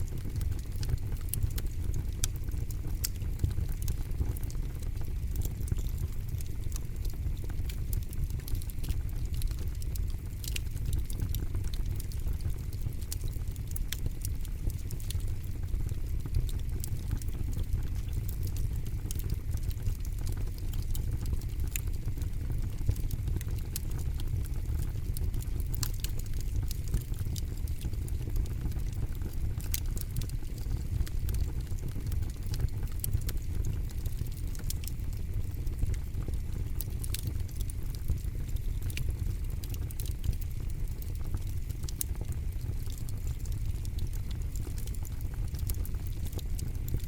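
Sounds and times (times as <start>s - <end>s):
campfire crackling and popping: 0.0s - 47.0s.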